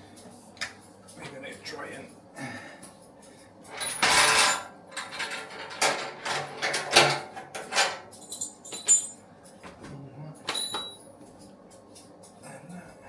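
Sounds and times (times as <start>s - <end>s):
clatter of fittings and tools: 3.6s - 9.2s.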